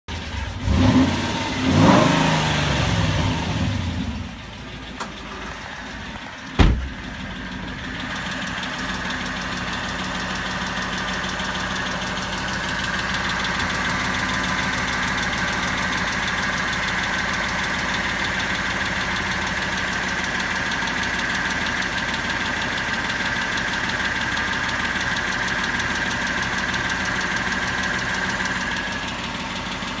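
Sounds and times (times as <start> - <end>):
car engine revving and idling: 0.1 - 30.0
sharp knock: 6.6 - 7.0.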